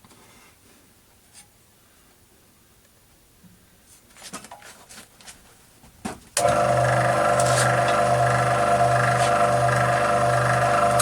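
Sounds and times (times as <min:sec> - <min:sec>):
scroll saw running: 0:06.4 - 0:11.0.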